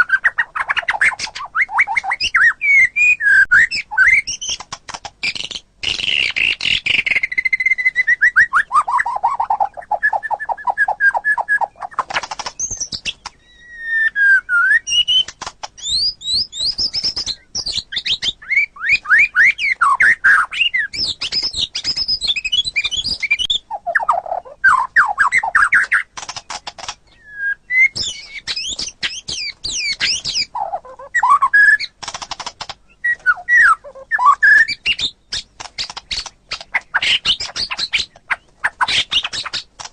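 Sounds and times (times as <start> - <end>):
bird singing trills and whistles: 0.0 - 39.8.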